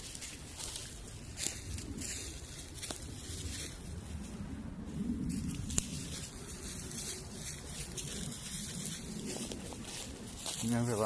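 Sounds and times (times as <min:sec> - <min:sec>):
footsteps crunching leaf litter: 0:00.0 - 0:04.4, 0:05.2 - 0:11.0.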